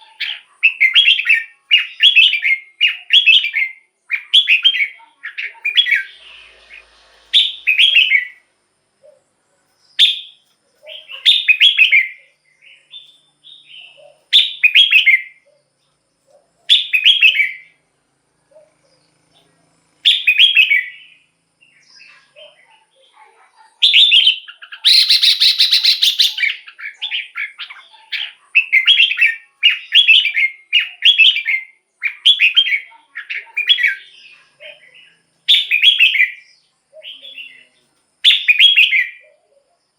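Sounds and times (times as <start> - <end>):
bird singing short phrases: 0.0 - 8.4, 9.1 - 15.8, 16.6 - 17.8, 18.6 - 23.2, 23.8 - 39.7
harsh buzzy bird call: 0.0 - 8.5, 23.8 - 34.1.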